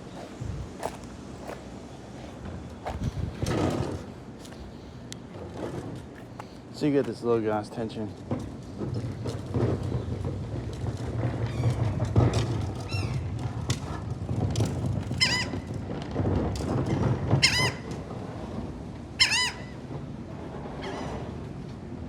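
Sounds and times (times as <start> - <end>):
seagulls calling: 0.0 - 4.9, 15.1 - 15.7, 17.4 - 17.9, 19.2 - 19.9
steady low hum: 0.0 - 7.3.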